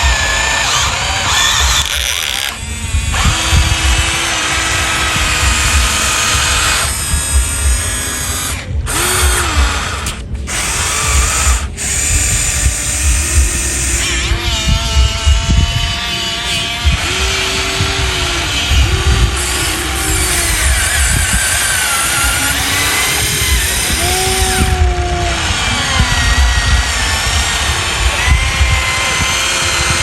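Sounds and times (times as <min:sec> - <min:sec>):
low clattering rattle: 0:00.0 - 0:30.0
small electric motors whining: 0:00.0 - 0:30.0.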